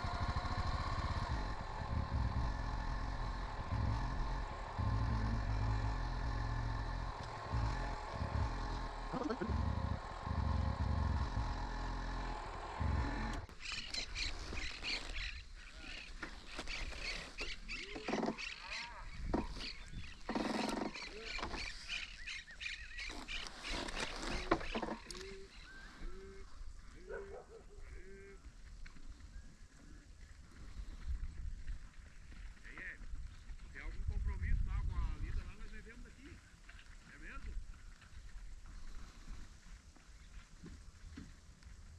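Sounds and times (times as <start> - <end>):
low steady rumble: 0.0 - 13.5
motorcycle engine running: 0.0 - 13.5
short arching animal calls: 0.0 - 28.5
high chirping calls: 13.5 - 26.2.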